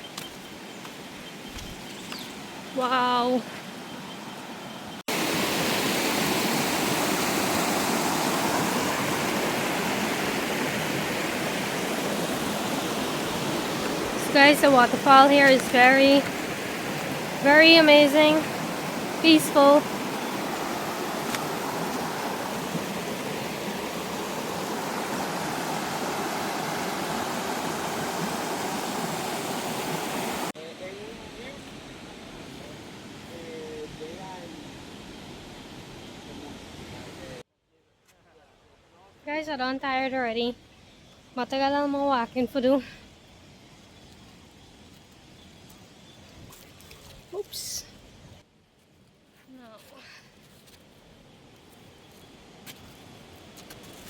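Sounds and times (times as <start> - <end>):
waterfall rushing: 5.1 - 30.5.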